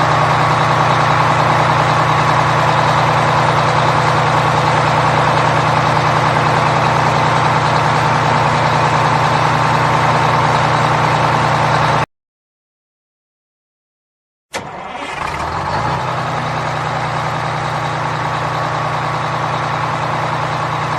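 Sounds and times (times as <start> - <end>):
truck engine idling: 0.0 - 12.0, 14.6 - 20.9.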